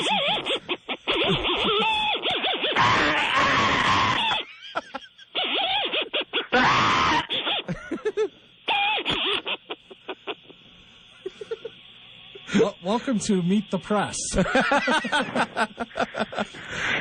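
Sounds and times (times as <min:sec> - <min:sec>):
person shrieking and laughing: 0:00.0 - 0:09.4, 0:11.3 - 0:11.8, 0:14.4 - 0:17.0.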